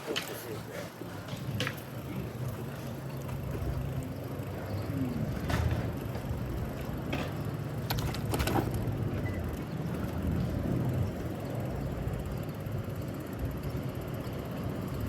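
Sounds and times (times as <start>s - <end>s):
city street traffic: 0.0s - 15.0s
vehicle engine running: 0.6s - 15.0s
sharp clicks and rattles: 5.4s - 12.3s.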